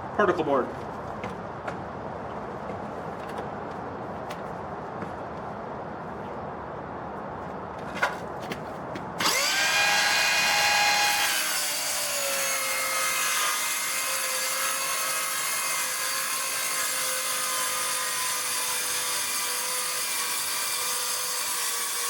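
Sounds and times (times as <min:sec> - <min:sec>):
circular saw cutting board: 0:09.2 - 0:22.0.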